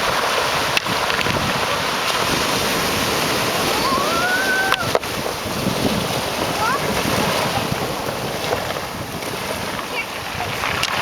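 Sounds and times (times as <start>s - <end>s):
waves breaking: 0.0s - 11.0s
wind buffeting microphone: 0.0s - 11.0s
wind rushing: 1.3s - 9.7s.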